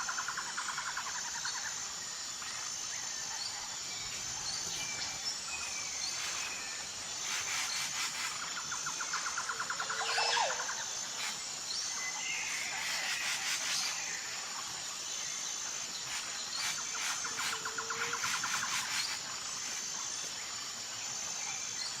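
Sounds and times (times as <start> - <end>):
steady high-pitched whine: 0.0 - 22.0
birds chirping and trilling: 1.0 - 14.4.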